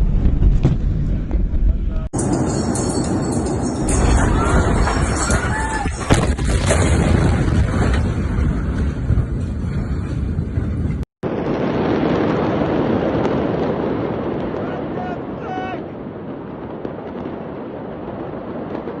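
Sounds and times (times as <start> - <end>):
dense low rumble: 0.0 - 11.4.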